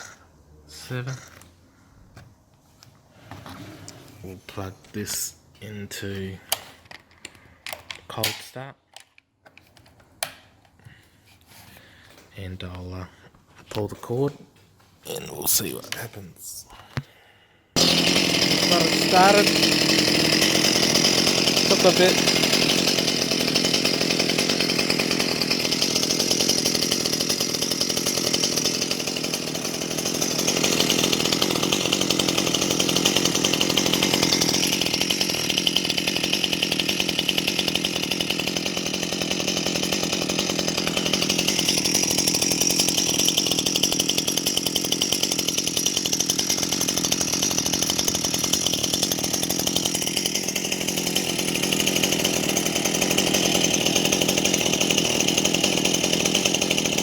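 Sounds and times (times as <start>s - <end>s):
chainsaw engine running: 0.0s - 1.4s, 17.8s - 57.0s.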